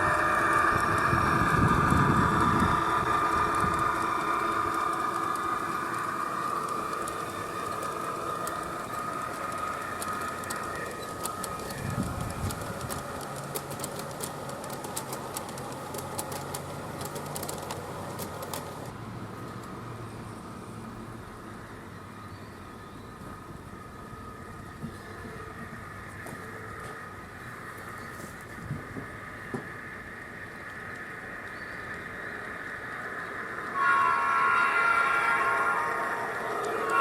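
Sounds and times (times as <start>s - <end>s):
sharp clicks: 0.0s - 18.9s
model train running hum: 0.0s - 37.0s.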